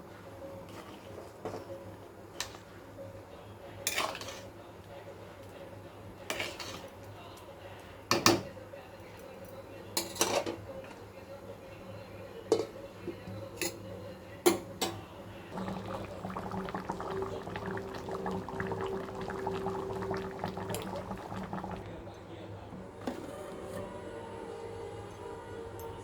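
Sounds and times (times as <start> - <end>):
food bubbling in a pot: 15.5 - 22.0.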